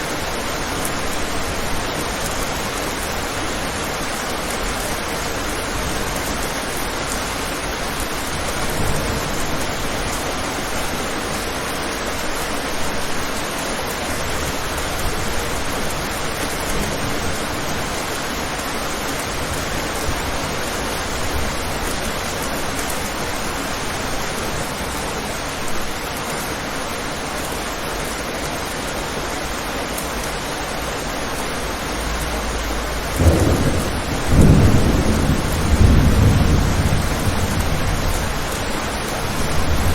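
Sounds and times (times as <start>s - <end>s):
rain on a window: 0.0s - 39.9s
thunder rumbling: 32.4s - 39.9s.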